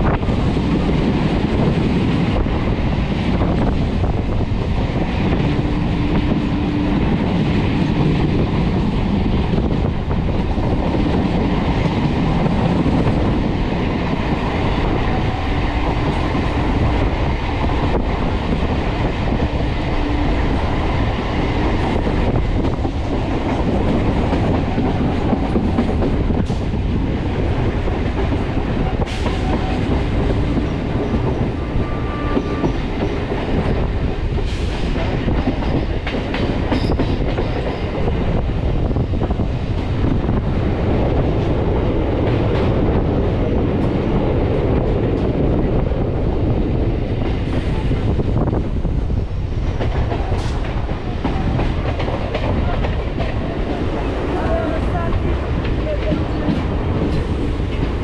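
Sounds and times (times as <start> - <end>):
clickety-clack over rail joints: 0.0 - 58.0
train wheels rumbling on track: 0.0 - 58.0.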